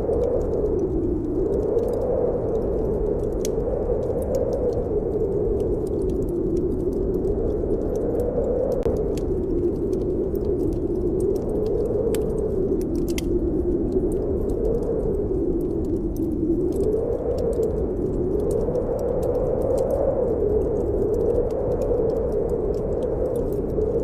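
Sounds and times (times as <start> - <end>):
wind howling: 0.0 - 24.0
wood fire crackling: 0.0 - 24.0.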